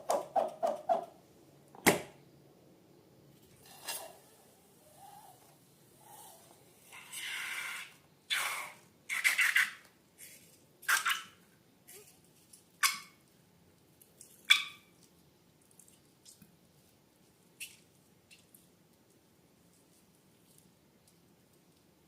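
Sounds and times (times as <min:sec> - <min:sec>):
wet slime squelches: 0:13.9 - 0:21.8.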